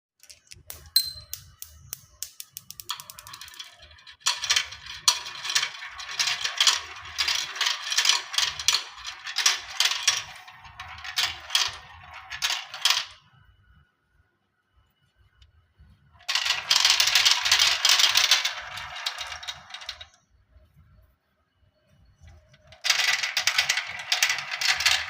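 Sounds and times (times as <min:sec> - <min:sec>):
marbles clicking in a marble run: 0:00.2 - 0:13.2, 0:16.2 - 0:20.2, 0:22.3 - 0:25.0
marble rolling whir: 0:02.7 - 0:13.4, 0:15.8 - 0:20.6, 0:21.7 - 0:25.0.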